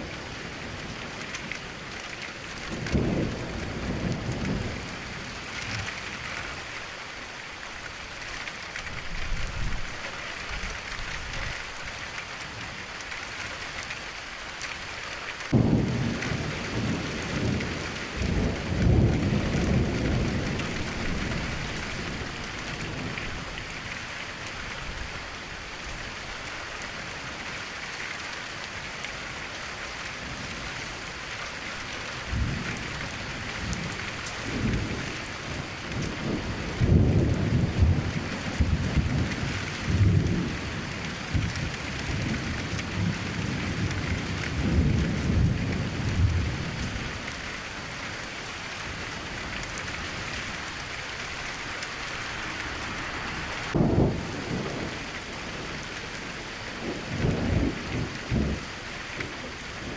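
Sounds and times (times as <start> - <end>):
steady rain: 0.0 - 59.9
thunder rumbling: 2.6 - 6.6, 15.5 - 23.8, 32.2 - 47.2, 53.4 - 59.9
thunderclap: 15.5 - 22.2, 53.7 - 55.1, 56.8 - 58.6.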